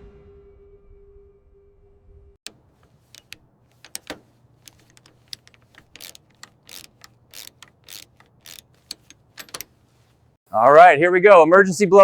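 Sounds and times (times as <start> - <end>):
light clicks and taps: 2.5 - 10.4.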